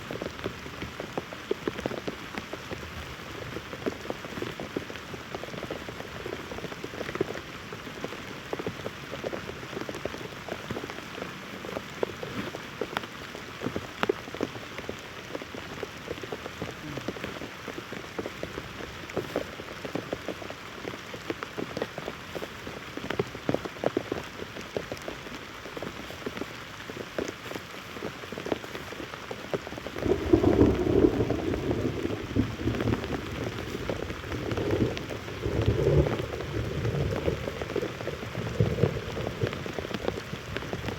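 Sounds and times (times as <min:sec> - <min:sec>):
heavy rain falling: 0:00.0 - 0:40.9
raindrops tapping: 0:00.0 - 0:40.9.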